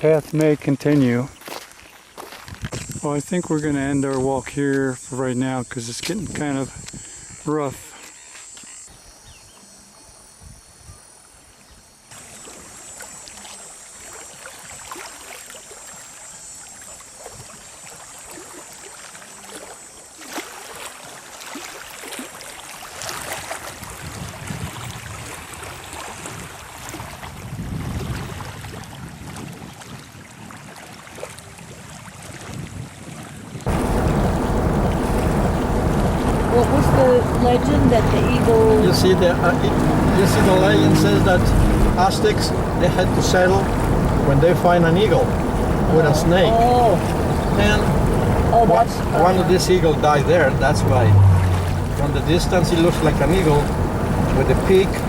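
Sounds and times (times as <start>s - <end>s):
waves on lakeshore: 0.0s - 10.4s, 11.0s - 55.0s
faint insects chirping: 0.0s - 23.9s, 33.7s - 55.0s
wind on microphone: 2.4s - 4.2s, 23.1s - 55.0s.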